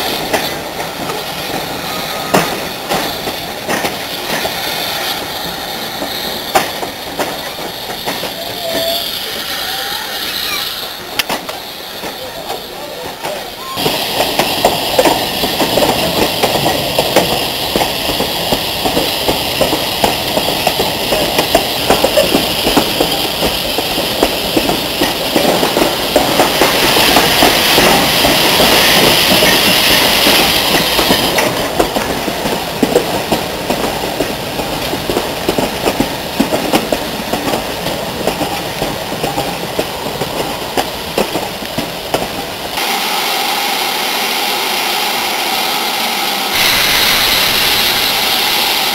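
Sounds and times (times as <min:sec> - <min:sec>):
train wheels clattering on rails: 0:00.0 - 0:43.0
steam hiss: 0:00.0 - 0:48.9
steady rushing noise: 0:45.9 - 0:48.9.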